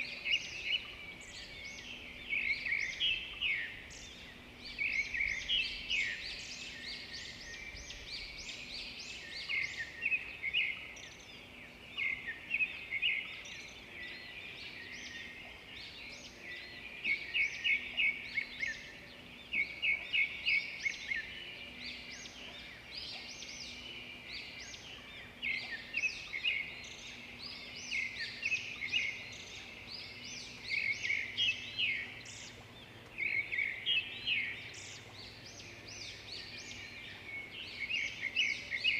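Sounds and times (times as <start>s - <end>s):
songbirds chirping and singing: 0.0s - 38.9s.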